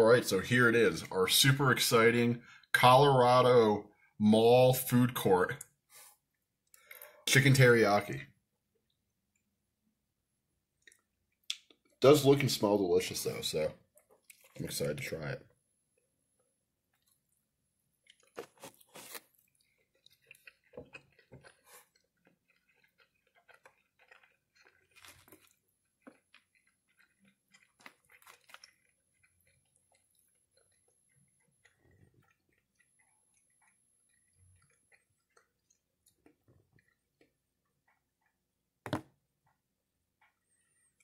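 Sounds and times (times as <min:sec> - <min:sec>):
faint chewing: 0:05.5 - 0:07.4, 0:10.7 - 0:12.4, 0:13.7 - 0:41.0
small clicks and mouth noises: 0:06.6 - 0:07.2, 0:10.8 - 0:12.0, 0:18.0 - 0:38.7.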